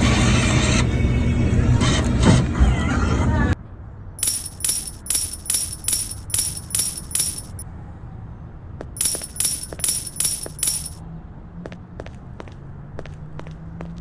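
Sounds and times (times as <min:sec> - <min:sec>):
rhythmic metallic jingling: 0:04.2 - 0:07.6, 0:09.0 - 0:11.0.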